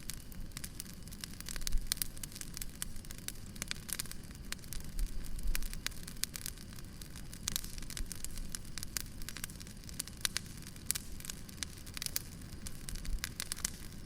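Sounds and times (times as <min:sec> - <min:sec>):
fire crackling and popping: 0:00.0 - 0:14.0
low rumble of fire: 0:00.0 - 0:14.0.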